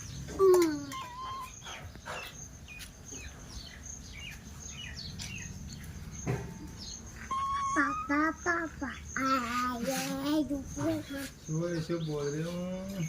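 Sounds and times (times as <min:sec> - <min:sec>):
parrot chirping: 0:00.8 - 0:02.4, 0:06.9 - 0:10.1.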